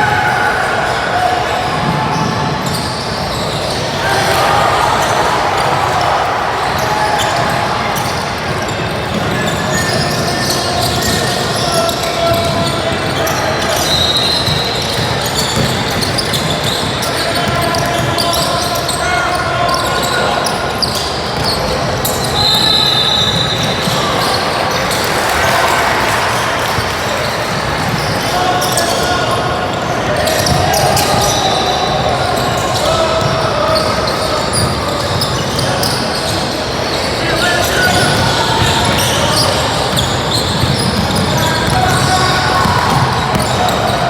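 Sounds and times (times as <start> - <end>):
spectators' voices: 0.0 - 44.0
shoes squeaking on court floor: 1.4 - 6.0, 6.6 - 44.0
basketball dribbling: 38.1 - 44.0.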